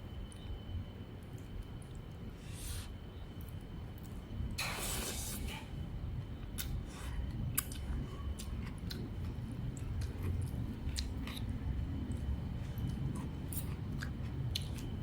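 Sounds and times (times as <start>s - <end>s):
low background rumble: 5.6s - 15.0s
person chewing: 6.6s - 14.9s.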